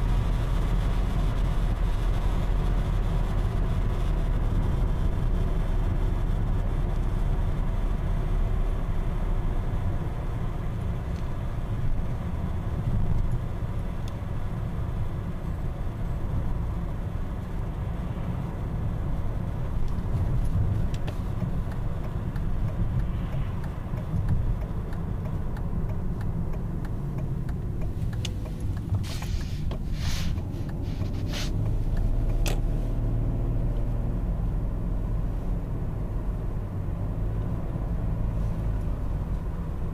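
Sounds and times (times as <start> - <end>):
car engine rumble: 0.0 - 39.9
road noise: 0.0 - 39.9
sharp clicks: 20.9 - 30.8.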